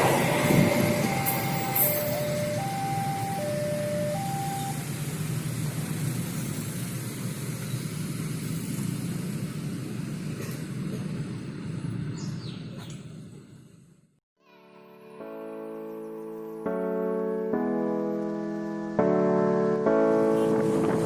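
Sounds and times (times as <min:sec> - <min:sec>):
two-tone crossing alarm: 0:00.0 - 0:05.0
low vehicle rumble: 0:00.0 - 0:14.2, 0:16.8 - 0:21.0
bird chirps: 0:12.1 - 0:13.1.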